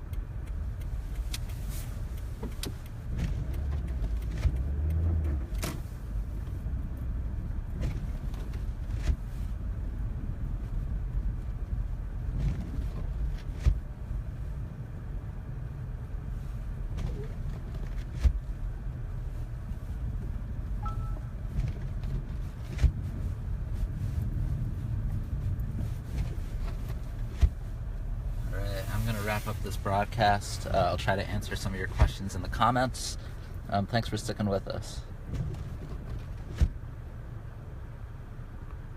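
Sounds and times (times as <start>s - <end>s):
engine and tyre rumble: 0.0s - 38.9s
faint short beep: 20.8s - 21.4s.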